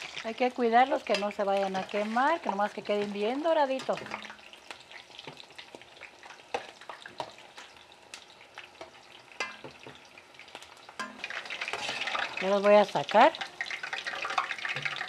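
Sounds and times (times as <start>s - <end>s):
onion and garlic sizzling in oil: 0.0s - 15.0s
spatula stirring in pot: 1.0s - 12.6s.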